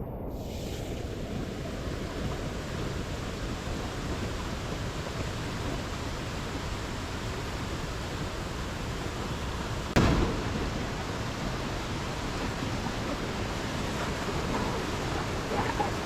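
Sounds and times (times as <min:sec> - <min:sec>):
waterfall rushing: 0:09.8 - 0:16.0
sudden thump: 0:10.0 - 0:11.8.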